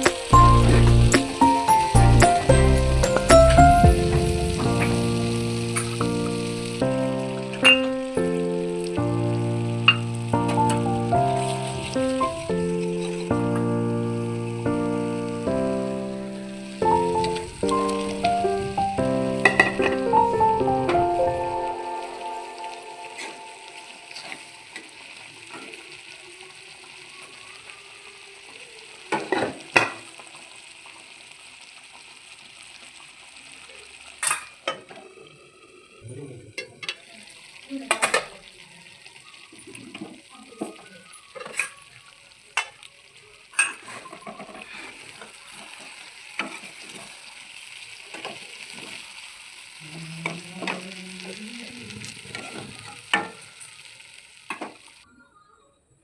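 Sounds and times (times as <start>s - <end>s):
food sizzling in a pan: 0.0s - 55.7s.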